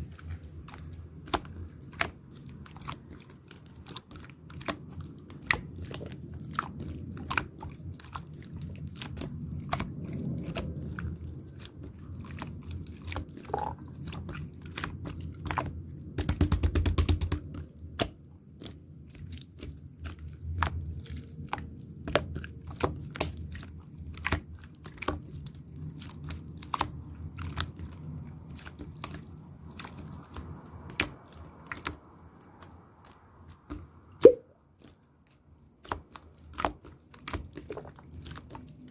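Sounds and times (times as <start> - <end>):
slime clicking and popping: 13.4 - 13.8, 33.7 - 34.4.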